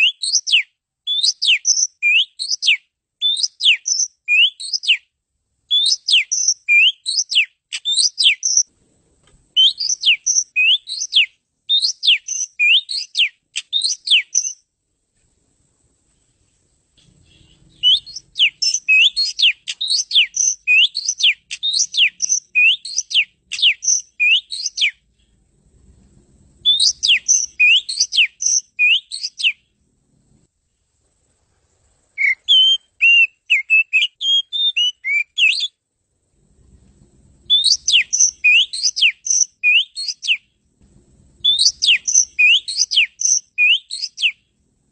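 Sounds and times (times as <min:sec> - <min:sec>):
bird singing whistled notes: 0:00.0 - 0:05.1, 0:05.7 - 0:08.7, 0:09.6 - 0:14.7, 0:17.0 - 0:25.0, 0:26.6 - 0:29.7, 0:32.2 - 0:35.8, 0:37.5 - 0:40.5, 0:41.4 - 0:44.4.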